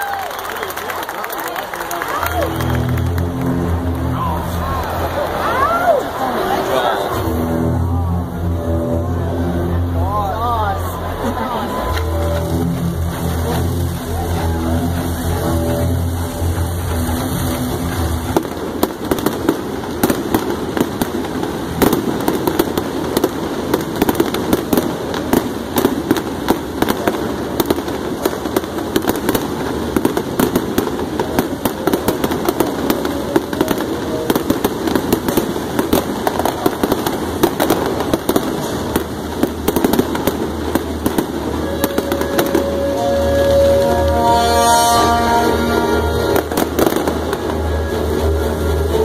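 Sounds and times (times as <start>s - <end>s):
fireworks popping and crackling: 0.0s - 49.0s.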